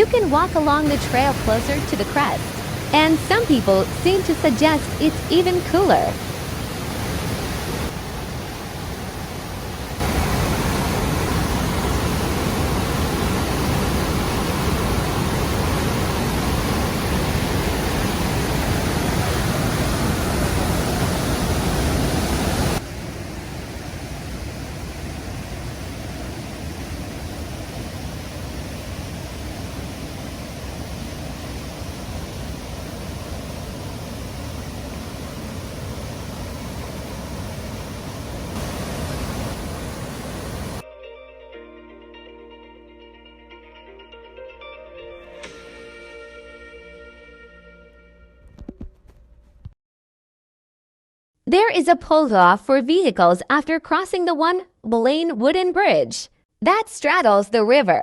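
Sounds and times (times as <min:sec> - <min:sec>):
waterfall roar: 0:00.1 - 0:40.8.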